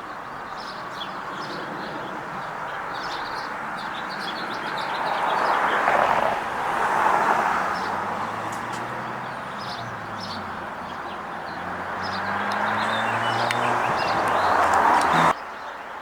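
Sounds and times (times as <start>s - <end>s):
road traffic passing: 0.0s - 16.0s
small birds chirping: 0.1s - 6.0s, 7.0s - 16.0s
low engine hum: 7.7s - 15.4s.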